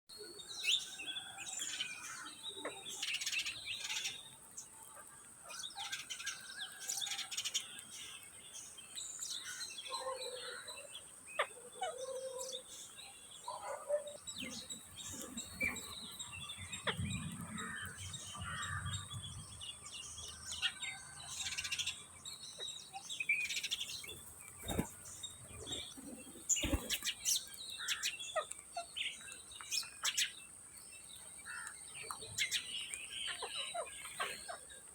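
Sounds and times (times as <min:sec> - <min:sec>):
parakeets chirping and chattering: 0:22.5 - 0:30.4.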